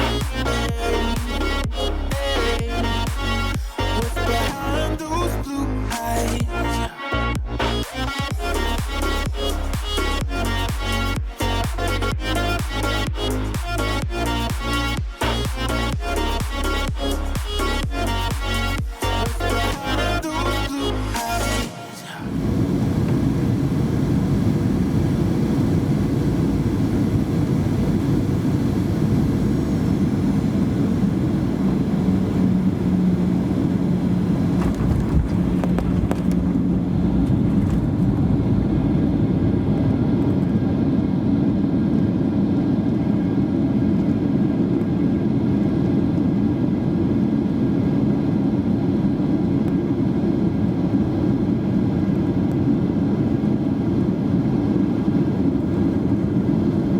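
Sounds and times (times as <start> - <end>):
steady hum: 0.0 - 56.9
airplane engines and airflow rushing: 21.6 - 56.9.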